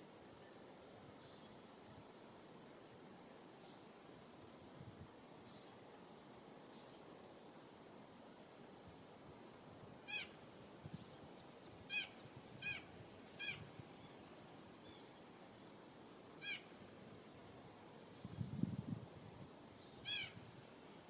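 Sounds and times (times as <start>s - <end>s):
songbird calls: 1.2s - 1.6s, 3.6s - 4.0s, 4.8s - 5.8s, 6.7s - 7.1s, 9.6s - 16.8s, 18.1s - 19.1s, 19.8s - 20.4s.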